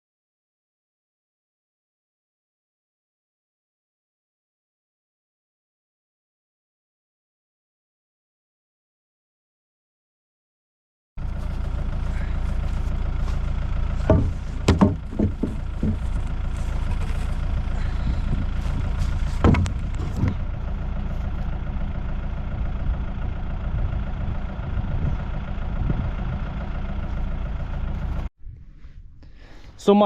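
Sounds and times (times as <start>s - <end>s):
engine idling: 11.2s - 28.3s
knocks and thumps: 13.9s - 17.1s, 17.8s - 20.4s.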